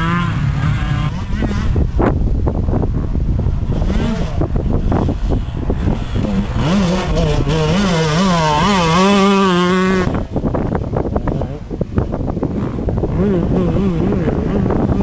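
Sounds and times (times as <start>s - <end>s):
two-stroke motorcycle engine revving: 0.0s - 15.0s.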